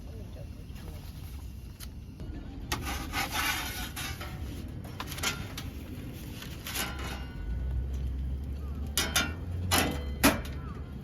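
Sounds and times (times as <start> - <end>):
rubbing and scraping: 2.7 - 7.3.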